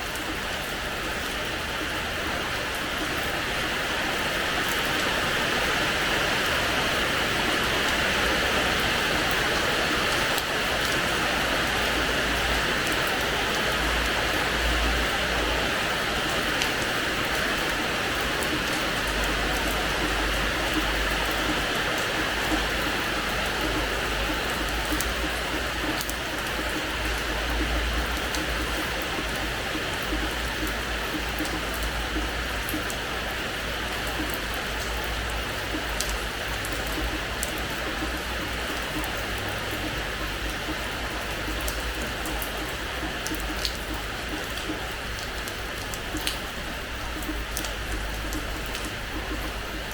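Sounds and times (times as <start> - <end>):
rain falling on a terrace floor: 0.0 - 49.9
drops ticking: 18.4 - 33.0, 33.6 - 49.9.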